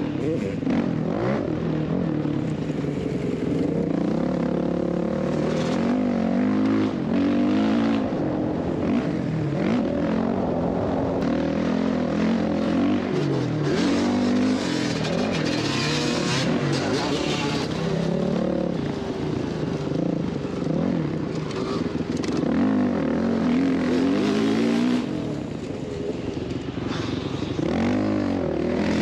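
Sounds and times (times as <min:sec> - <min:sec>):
dirt bike engine revving: 0:11.3 - 0:19.0.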